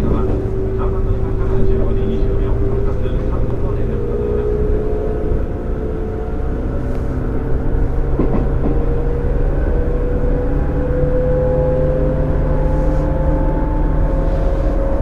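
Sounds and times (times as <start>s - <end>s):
electric train motor whine: 0.0s - 15.0s
low train rumble: 0.0s - 15.0s
knock: 8.2s - 8.8s.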